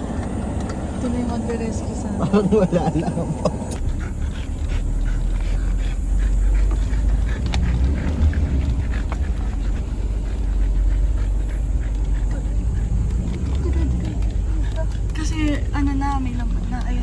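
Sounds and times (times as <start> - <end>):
truck engine rumbling: 0.0 - 17.0
faint clicks: 3.7 - 17.0.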